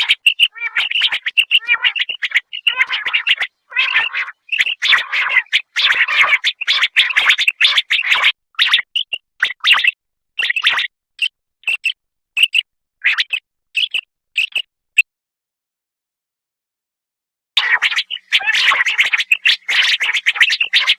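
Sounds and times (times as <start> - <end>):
quail calling: 0.0 - 9.1, 17.6 - 20.9.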